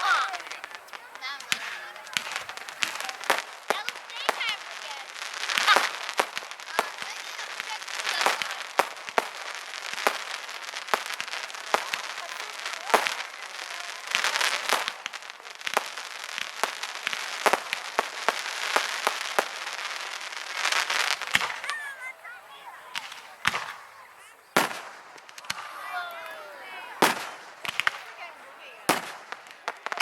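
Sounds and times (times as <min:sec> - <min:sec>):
fireworks bangs: 0:00.0 - 0:30.0
fireworks crackling: 0:00.0 - 0:30.0.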